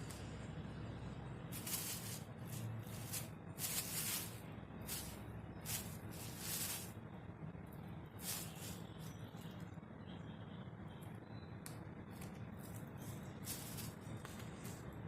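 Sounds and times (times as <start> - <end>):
kittens rustling plastic: 1.5 - 7.0, 8.2 - 9.2, 12.6 - 14.8.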